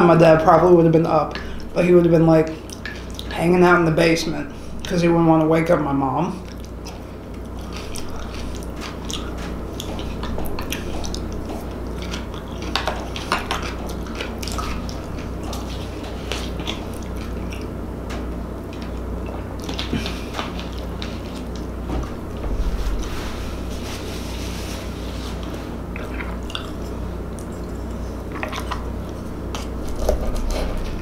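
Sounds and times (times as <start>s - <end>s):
steady low hum: 0.0s - 31.0s
person chewing with wet mouth sounds: 2.5s - 3.4s, 6.4s - 21.7s, 25.9s - 31.0s.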